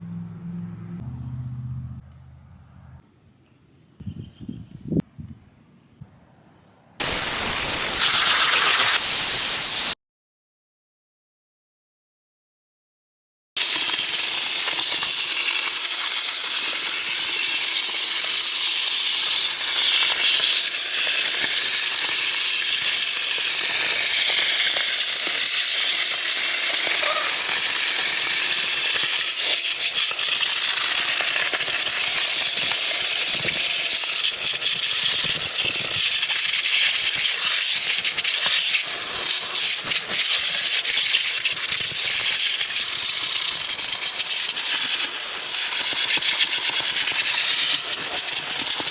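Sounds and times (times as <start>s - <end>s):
pressure washer jet hissing: 7.0s - 10.0s, 13.6s - 48.9s.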